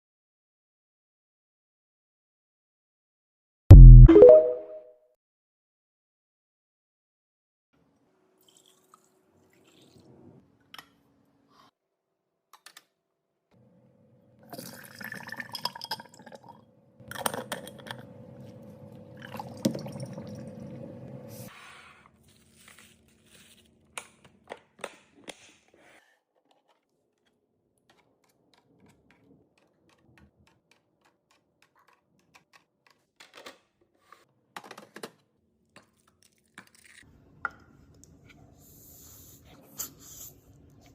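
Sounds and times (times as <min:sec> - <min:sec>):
food pouring: 0:14.5 - 0:16.6.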